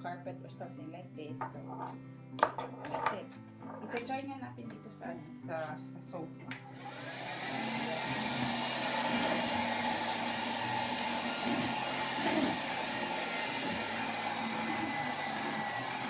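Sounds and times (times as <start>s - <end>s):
handheld vacuum cleaner running: 6.6s - 16.0s.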